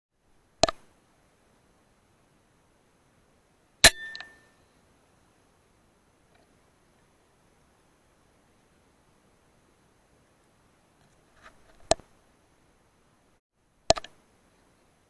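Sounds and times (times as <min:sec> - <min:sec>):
metallic ring and rattles: 0:03.8 - 0:04.6.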